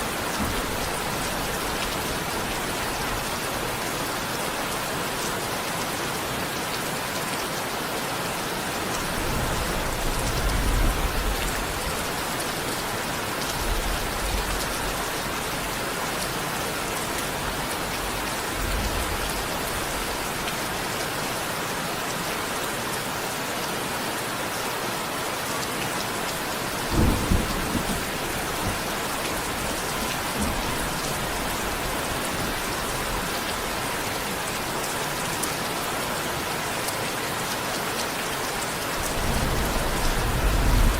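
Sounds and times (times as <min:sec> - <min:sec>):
steady rain: 0:00.0 - 0:40.9
low rolls of thunder: 0:09.0 - 0:12.3, 0:26.8 - 0:33.8, 0:39.0 - 0:40.9
sharp thunder clap: 0:39.0 - 0:40.9.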